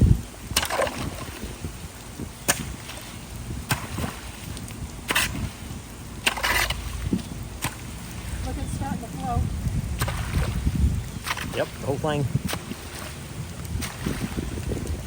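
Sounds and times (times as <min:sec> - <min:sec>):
running water: 0:00.0 - 0:15.0
wind noise: 0:00.0 - 0:15.0
sharp knocks and scrapes: 0:05.1 - 0:05.5, 0:06.2 - 0:07.9, 0:11.2 - 0:11.7.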